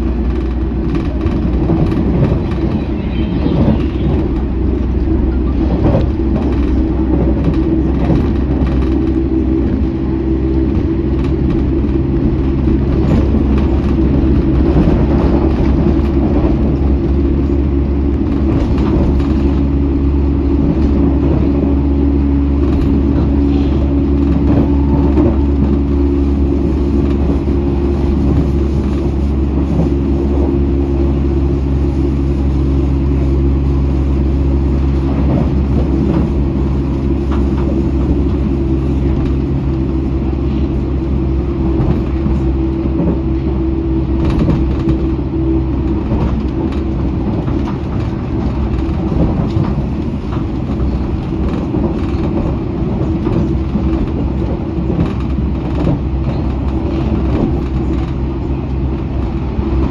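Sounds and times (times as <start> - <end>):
low hum: 0.0 - 59.9
train wheels rumbling on rails: 0.0 - 59.9.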